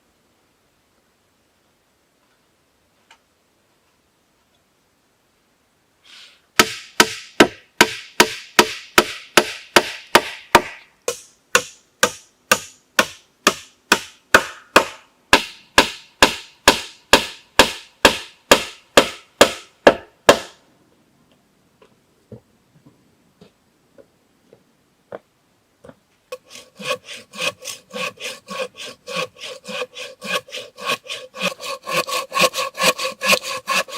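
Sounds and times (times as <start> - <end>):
rapid chopping on wood: 6.6 - 20.6.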